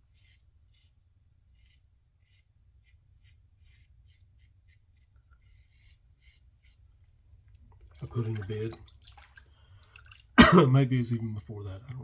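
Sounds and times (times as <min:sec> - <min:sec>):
razor scraping stubble: 0:00.0 - 0:08.9.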